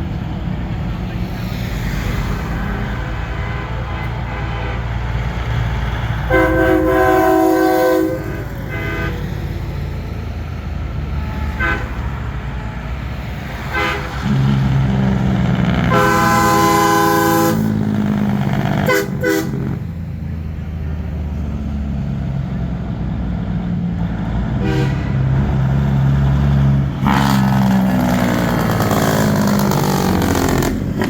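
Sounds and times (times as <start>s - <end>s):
truck engines rumbling: 0.0s - 31.0s
truck air horn blasts: 2.3s - 5.3s, 6.2s - 9.4s, 11.2s - 12.4s, 13.5s - 19.9s, 24.6s - 25.5s.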